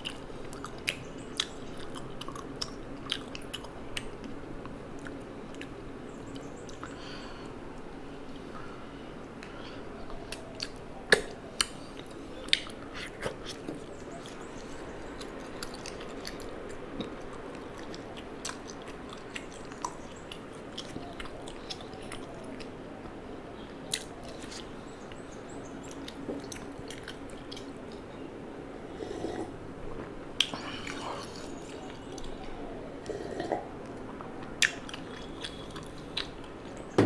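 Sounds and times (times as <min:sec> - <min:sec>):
person chewing food: 0:00.0 - 0:07.0, 0:10.0 - 0:22.8, 0:23.9 - 0:24.8, 0:25.8 - 0:28.1, 0:30.4 - 0:36.8.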